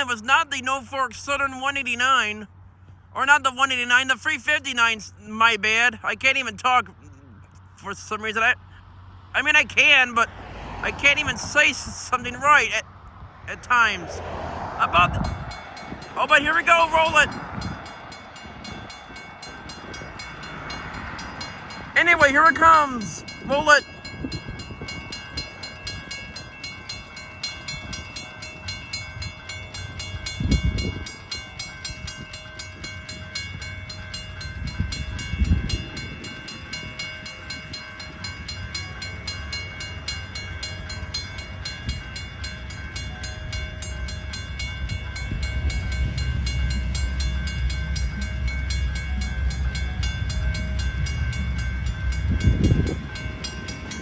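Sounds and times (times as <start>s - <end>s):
freight train rumble: 0.0s - 54.0s
crossing bell ringing: 13.6s - 54.0s.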